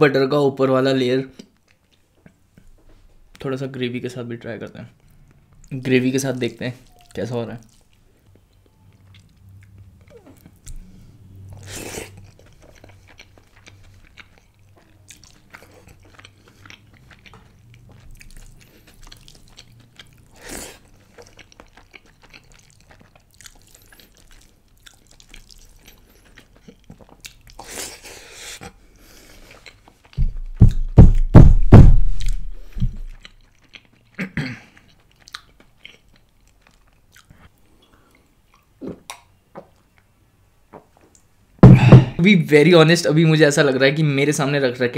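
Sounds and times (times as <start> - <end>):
person chewing food: 6.8 - 30.8, 32.0 - 40.1
loud low thumps: 30.2 - 33.1, 41.6 - 42.2.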